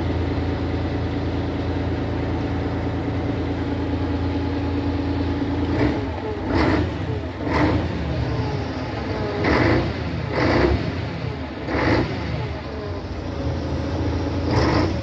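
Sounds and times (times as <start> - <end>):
truck engine humming: 0.0 - 15.0
loud engine surges: 3.4 - 15.0.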